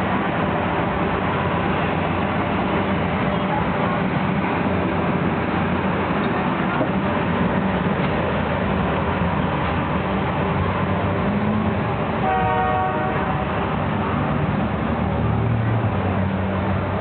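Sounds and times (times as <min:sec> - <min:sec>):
train rumbling: 0:00.0 - 0:17.0
train horn: 0:12.2 - 0:13.7.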